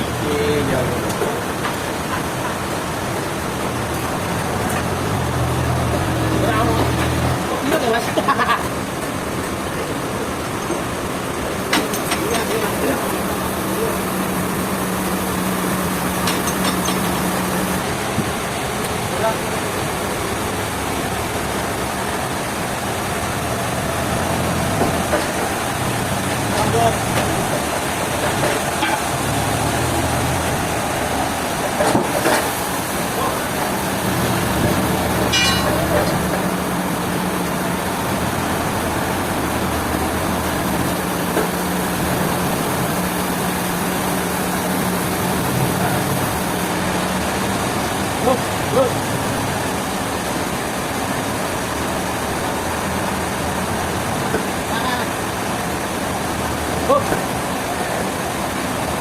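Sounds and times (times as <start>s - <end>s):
heavy engine running: 0.0s - 59.0s.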